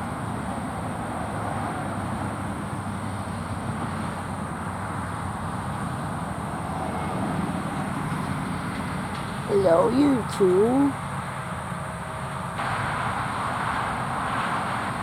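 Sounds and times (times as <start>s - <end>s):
distant road traffic hum: 0.0s - 15.0s.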